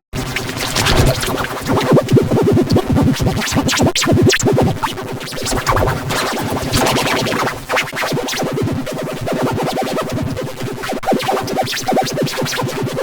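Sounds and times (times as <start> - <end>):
distorted stuttering electronic pulses: 0.4 - 1.9.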